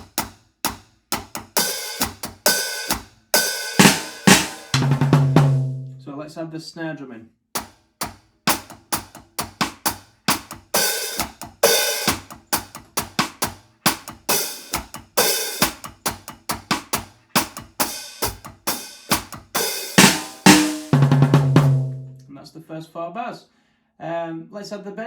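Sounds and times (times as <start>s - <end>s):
hi-hat pattern: 0.0s - 6.0s, 8.5s - 22.2s
snare drum strokes: 1.5s - 6.0s, 8.5s - 22.2s.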